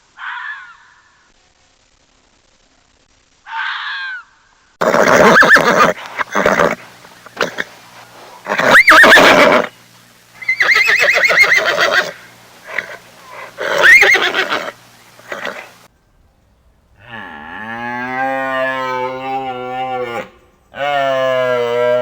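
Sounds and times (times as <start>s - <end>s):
horse neighing: 4.8s - 7.7s, 8.4s - 9.7s, 10.4s - 15.8s
horse snorting: 4.8s - 9.7s, 10.6s - 15.8s
cow mooing: 17.0s - 22.0s.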